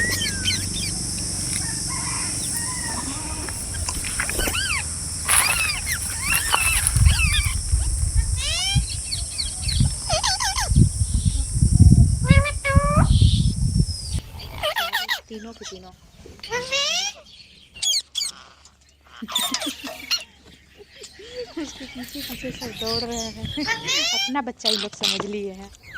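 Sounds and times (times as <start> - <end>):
steady high-pitched hiss: 0.0 - 14.2
birds chirping and squawking: 0.1 - 11.2
low rumbles: 0.6 - 12.2.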